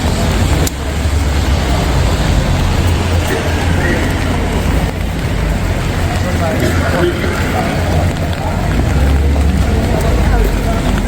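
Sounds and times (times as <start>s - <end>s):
passing traffic rumble: 0.0s - 11.0s.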